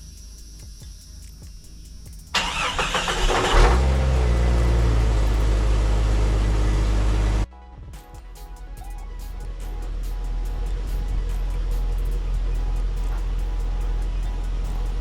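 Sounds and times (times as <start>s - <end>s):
car engine cranking and idling: 2.3s - 7.5s, 9.4s - 15.0s.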